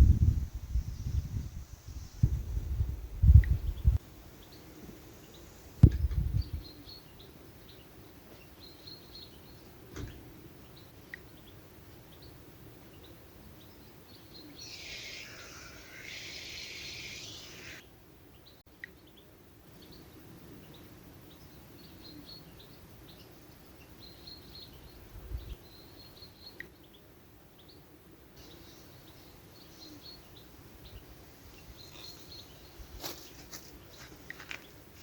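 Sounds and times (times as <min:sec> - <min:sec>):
faint bird chirps: 0:03.2 - 0:34.8
low thump: 0:05.8 - 0:06.4.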